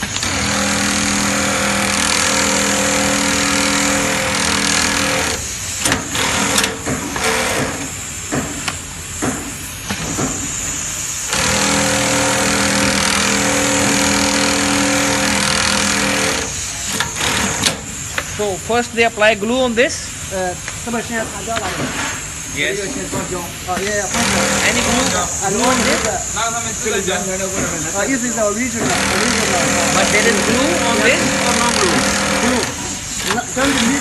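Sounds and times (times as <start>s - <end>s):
machine motor hum and hiss: 0.0s - 34.0s.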